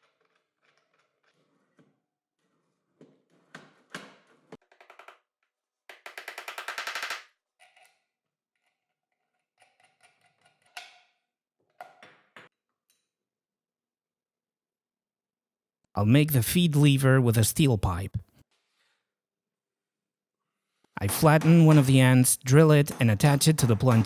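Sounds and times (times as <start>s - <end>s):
clicks and knocks of small parts: 5.9s - 8.0s.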